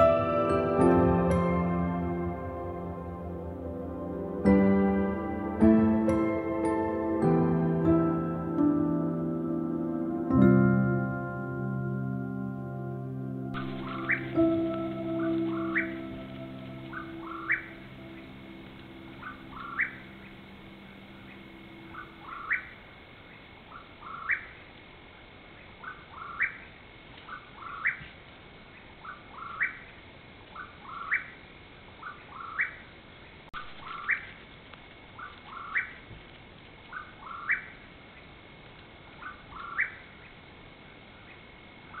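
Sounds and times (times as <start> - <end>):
bird calling with rising note: 13.5 - 22.8.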